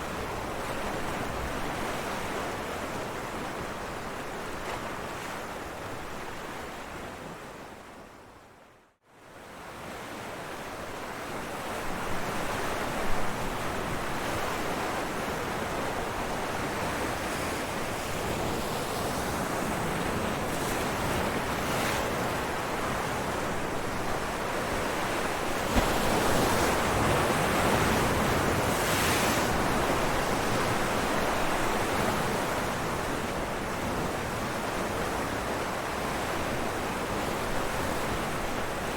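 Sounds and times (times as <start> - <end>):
ocean waves crashing on rocks: 24.3 - 33.0.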